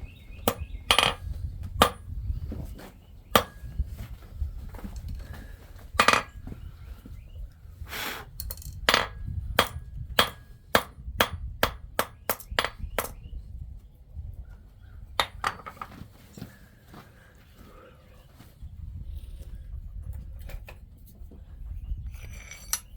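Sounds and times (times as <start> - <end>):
hammer striking metal on anvil: 0.5 - 1.2, 3.4 - 3.6, 6.0 - 6.3, 8.9 - 13.2.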